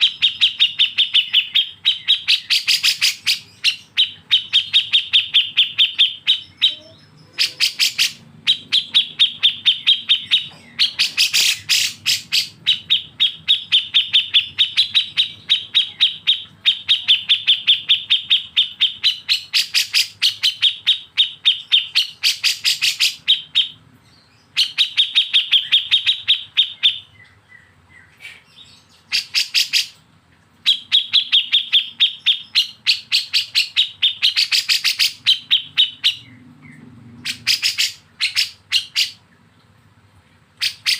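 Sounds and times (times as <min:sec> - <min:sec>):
songbird rattling call: 0:00.0 - 0:23.8.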